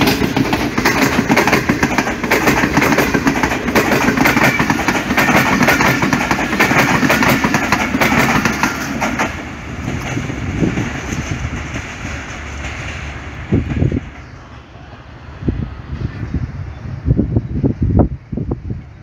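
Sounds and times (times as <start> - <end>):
wheels clattering over rail joints: 0.0 - 14.3
train coaches rushing past: 0.0 - 19.0.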